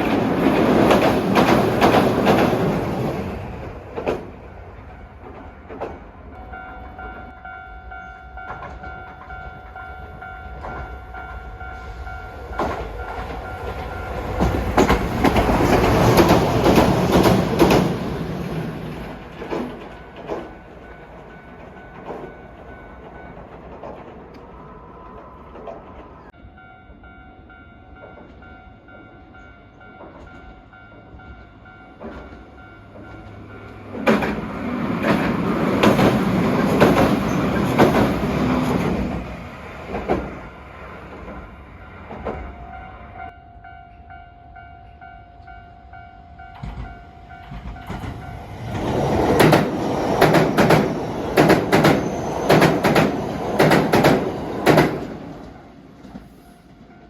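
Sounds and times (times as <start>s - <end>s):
wheels clattering over rail joints: 0.0s - 6.2s, 12.4s - 24.4s, 32.0s - 42.6s, 46.6s - 56.3s
train passing rumble: 0.0s - 57.0s.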